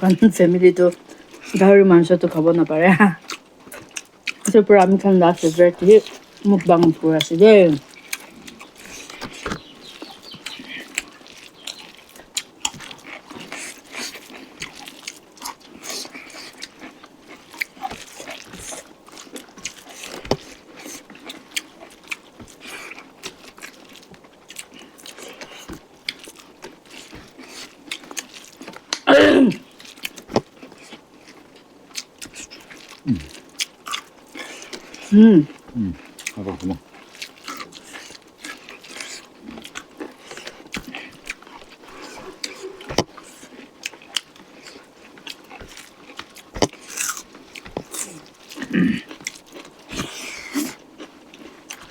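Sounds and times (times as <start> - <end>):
chewing: 0.0 - 51.9
lip smacks: 37.2 - 50.8.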